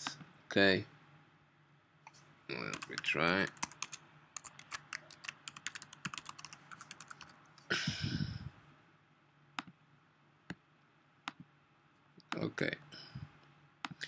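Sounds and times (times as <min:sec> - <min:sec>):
computer keyboard typing: 0:02.6 - 0:07.3.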